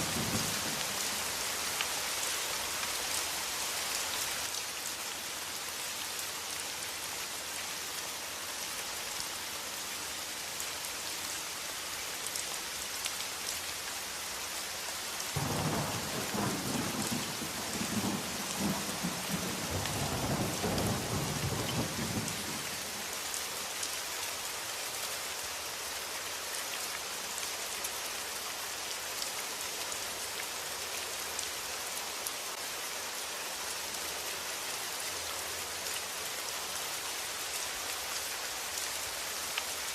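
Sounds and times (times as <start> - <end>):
thunder rumbling: 0.0 - 1.0, 15.4 - 22.6
steady rain: 0.0 - 39.9.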